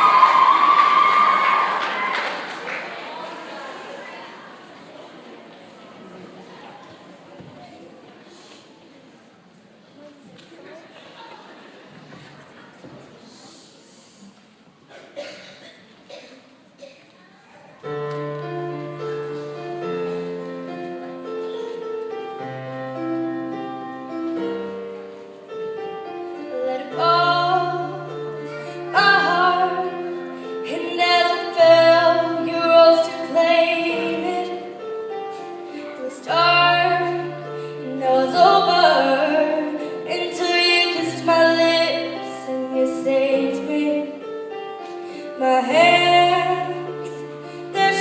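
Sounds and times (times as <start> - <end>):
slow piano accompaniment: 17.7 - 48.0
woman singing: 26.4 - 34.8, 35.8 - 44.3, 45.3 - 48.0.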